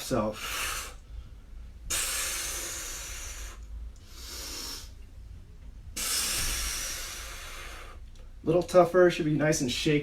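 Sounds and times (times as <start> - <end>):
person exhaling forcefully: 0.4 - 1.0, 1.9 - 5.0, 6.0 - 8.0.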